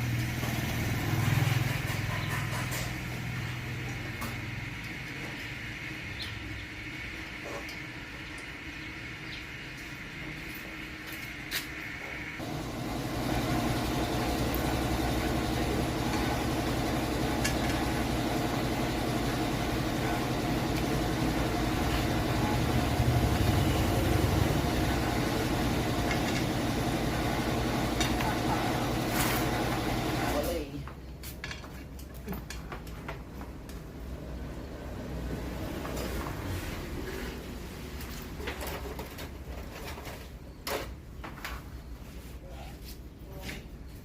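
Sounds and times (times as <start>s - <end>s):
engine running: 0.0s - 6.6s, 12.0s - 30.7s.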